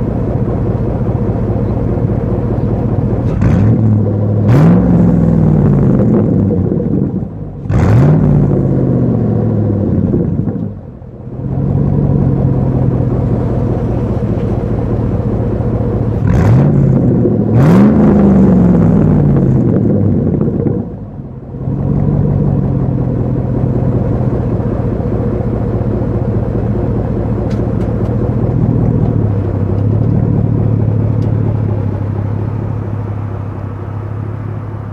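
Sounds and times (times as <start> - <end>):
engine revving: 0.0 - 34.9
truck exhaust idling: 0.0 - 34.9.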